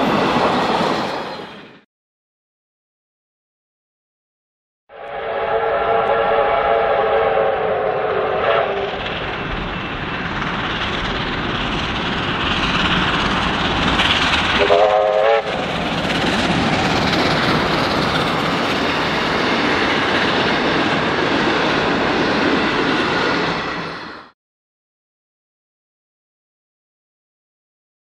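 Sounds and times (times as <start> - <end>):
train wheels rumbling on rails: 0.0 - 1.8, 7.4 - 24.4
train horn blast: 4.9 - 9.0, 14.6 - 15.5.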